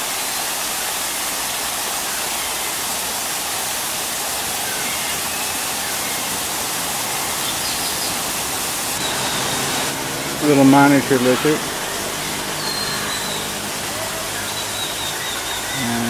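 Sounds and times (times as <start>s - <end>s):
steady rushing noise: 0.0s - 15.8s
faint bird chirps: 12.2s - 16.0s.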